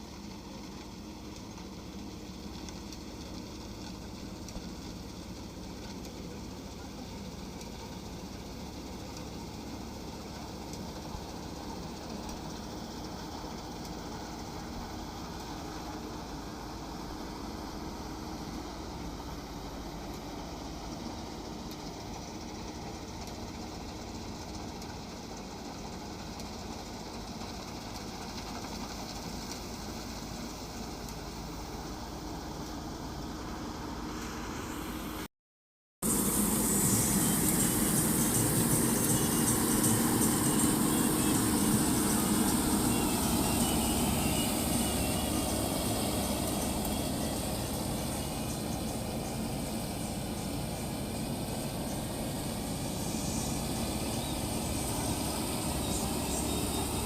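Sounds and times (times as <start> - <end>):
harvester engine drone: 0.0 - 35.3, 36.0 - 57.0.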